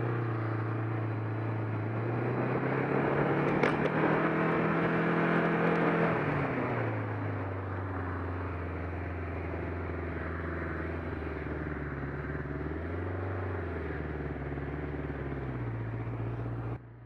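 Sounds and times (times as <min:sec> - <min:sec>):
motorcycle engine idling: 0:07.5 - 0:17.0.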